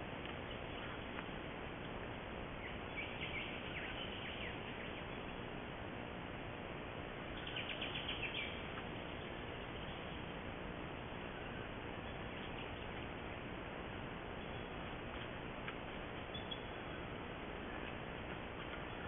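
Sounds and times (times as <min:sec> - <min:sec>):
background hiss: 0:00.0 - 0:19.0
small bird chirping: 0:02.5 - 0:05.5, 0:07.3 - 0:10.3, 0:11.4 - 0:13.3, 0:14.3 - 0:19.0.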